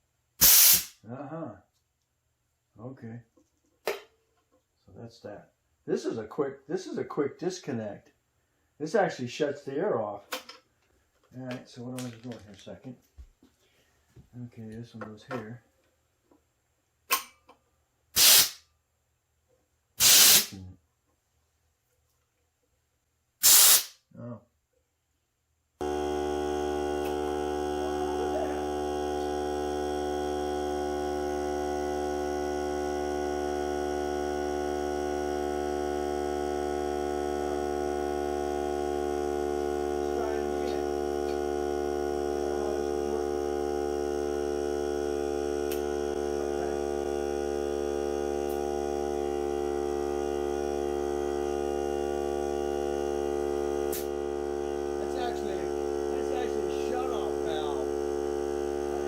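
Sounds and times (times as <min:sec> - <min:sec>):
air compressor humming: 0:00.4 - 0:01.0, 0:18.2 - 0:18.6, 0:20.0 - 0:20.6, 0:23.4 - 0:24.0, 0:25.8 - 0:59.0.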